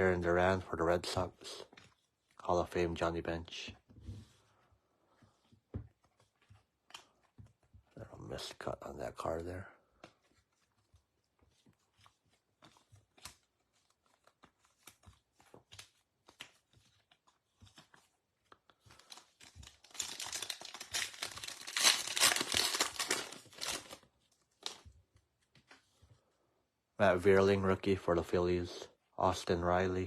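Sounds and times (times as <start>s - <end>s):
foil wrapper tearing and crinkling: 19.0s - 24.0s.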